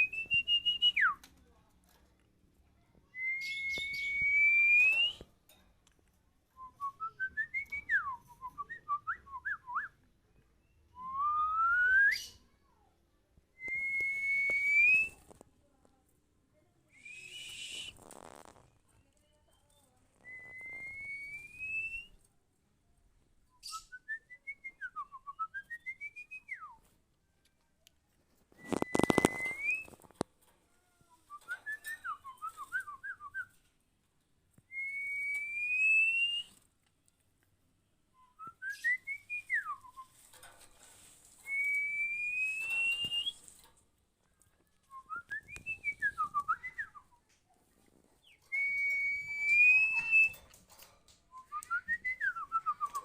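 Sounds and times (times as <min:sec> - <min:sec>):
whistled bird song: 0:03.2 - 0:05.2, 0:10.6 - 0:12.4, 0:17.0 - 0:17.9, 0:20.2 - 0:22.2, 0:23.5 - 0:26.7, 0:28.5 - 0:30.0, 0:34.7 - 0:36.6, 0:38.2 - 0:40.2, 0:41.5 - 0:43.5, 0:44.9 - 0:47.1, 0:48.2 - 0:50.4.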